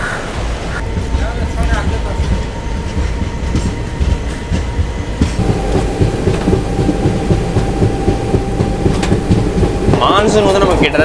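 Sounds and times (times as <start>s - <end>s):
train rumbling on rails: 0.0s - 11.0s
faint steady tone: 5.4s - 10.2s.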